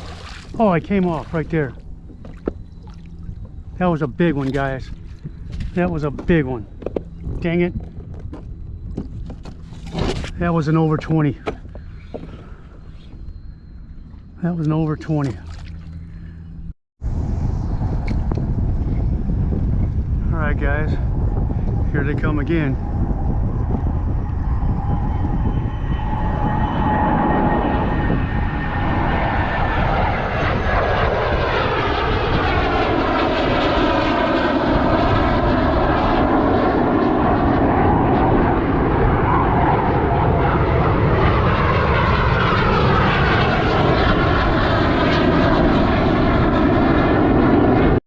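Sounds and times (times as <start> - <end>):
jet roar: 0.0 - 48.0.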